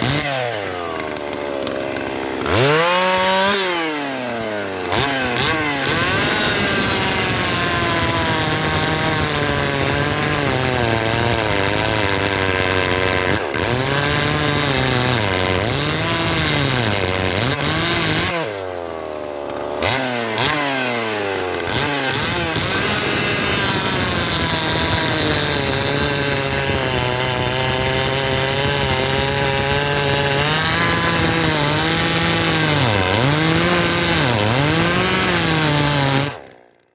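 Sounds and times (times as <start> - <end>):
chainsaw cutting at high revs: 0.0 - 36.9.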